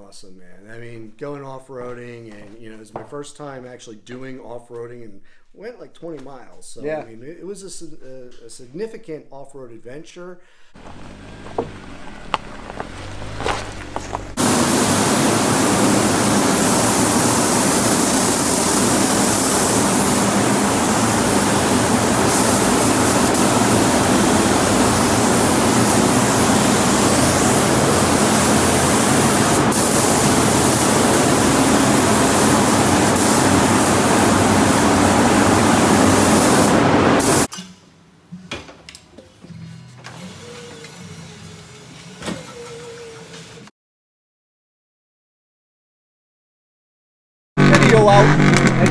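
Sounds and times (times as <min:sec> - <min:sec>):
loud rushing noise: 0:13.1 - 0:37.5
low engine drone: 0:19.7 - 0:37.5.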